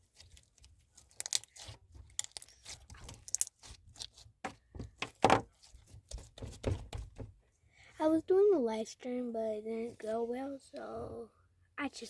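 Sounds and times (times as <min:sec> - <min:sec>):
crunchy slime crackling: 0:00.0 - 0:04.4.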